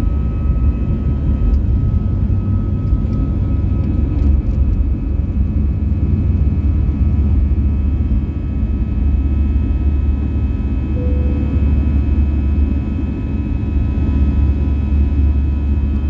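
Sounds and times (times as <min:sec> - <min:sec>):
airplane cabin engine drone: 0:00.0 - 0:16.0
faint steady high tones: 0:11.0 - 0:12.0.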